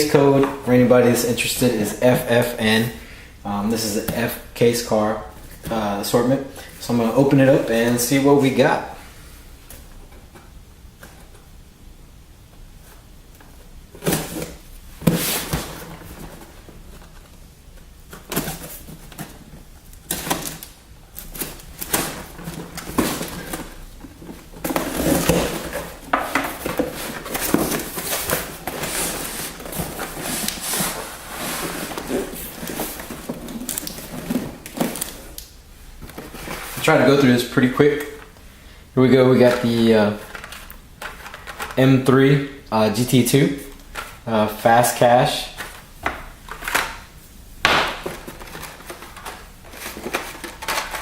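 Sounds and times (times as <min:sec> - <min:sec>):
cardboard rustling and scraping: 0:12.8 - 0:38.3, 0:48.0 - 0:51.0.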